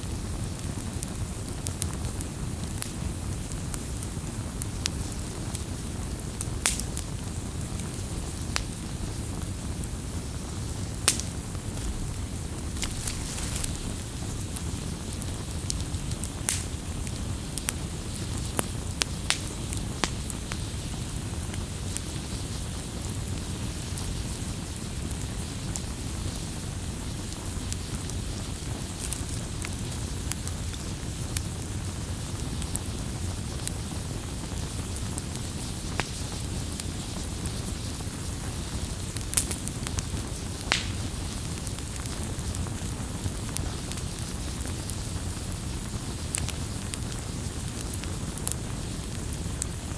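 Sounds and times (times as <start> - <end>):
bonfire crackling: 0.0 - 49.9
fire popping: 0.0 - 49.9
low rush of fire: 0.0 - 49.9.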